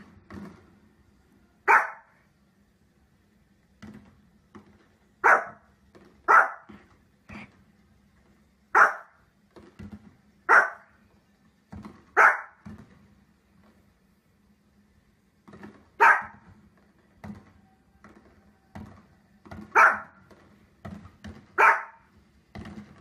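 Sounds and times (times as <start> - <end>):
small dog barking: 1.6 - 2.2, 5.2 - 5.7, 6.3 - 6.7, 8.7 - 9.2, 10.5 - 11.0, 12.2 - 12.6, 16.0 - 16.5, 19.7 - 20.2, 21.6 - 22.1.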